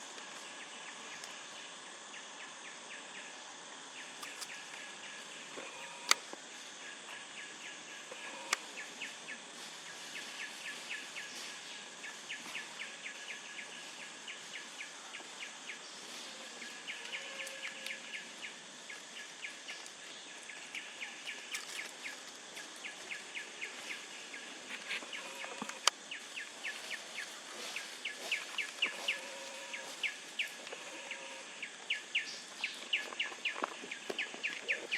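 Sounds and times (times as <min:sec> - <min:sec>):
sharp clicks: 0:04.2 - 0:04.8, 0:05.6 - 0:06.4, 0:25.1 - 0:26.0.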